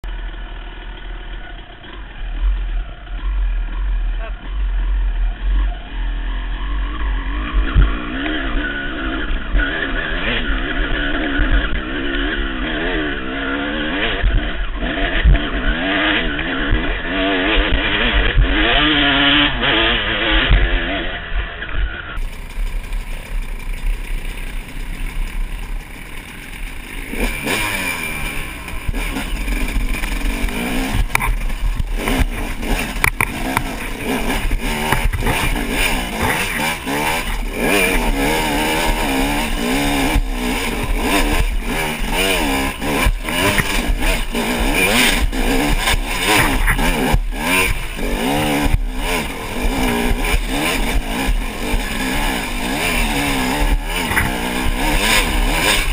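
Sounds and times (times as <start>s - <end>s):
dirt bike engine revving: 0.1s - 55.9s
bike knocks and clatter: 28.8s - 37.1s, 53.5s - 55.9s.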